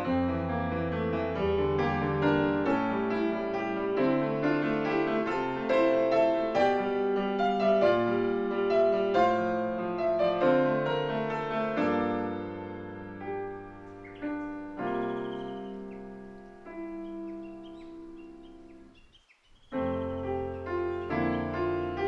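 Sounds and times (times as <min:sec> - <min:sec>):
solo piano piece: 0:00.0 - 0:22.0.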